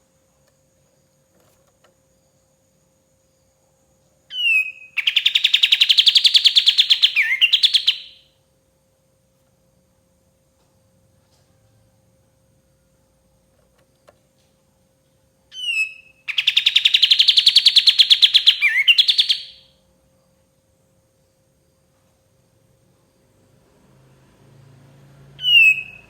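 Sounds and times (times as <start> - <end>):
songbird falling call: 4.3 - 8.2, 25.4 - 26.0
songbird rapid trill: 4.3 - 8.3, 15.5 - 19.7, 25.4 - 26.0.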